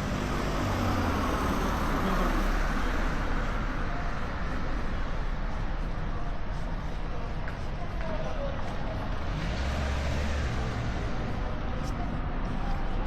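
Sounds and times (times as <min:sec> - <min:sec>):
street traffic rush: 0:00.0 - 0:13.0
vehicle passing: 0:08.9 - 0:13.0.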